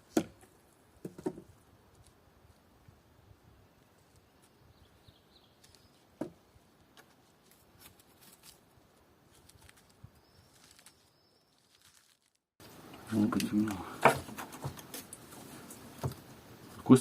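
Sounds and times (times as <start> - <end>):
bird chirps: 4.3 - 6.1, 10.2 - 12.0.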